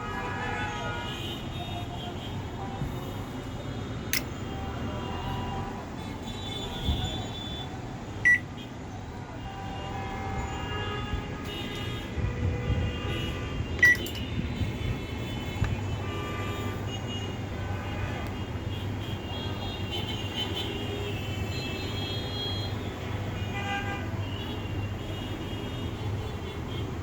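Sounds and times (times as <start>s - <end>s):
street traffic hum: 0.0s - 27.0s
sharp click: 4.1s - 4.4s.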